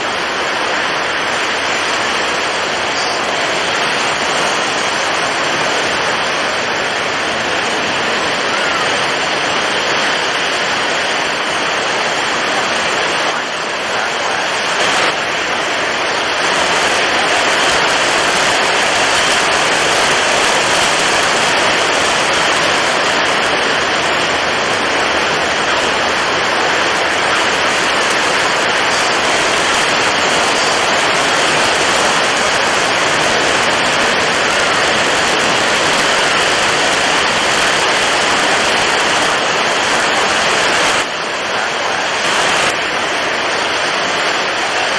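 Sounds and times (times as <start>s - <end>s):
waves breaking: 0.0s - 44.9s
wind blowing hard: 0.0s - 44.9s.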